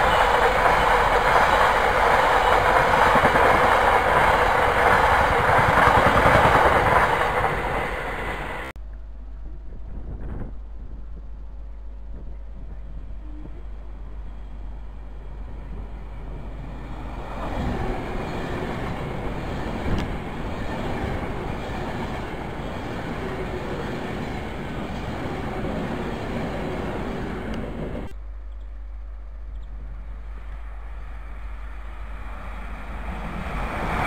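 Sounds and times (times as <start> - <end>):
electric train approaching: 0.0 - 8.7, 13.0 - 28.1, 29.5 - 34.0
electric train passing at speed: 0.0 - 8.7, 13.0 - 28.1, 29.5 - 34.0.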